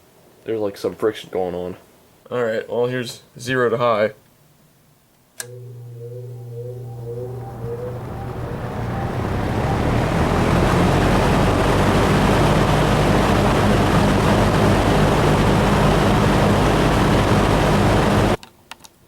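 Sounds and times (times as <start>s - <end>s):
box fan air rush and motor hum: 5.4s - 18.4s.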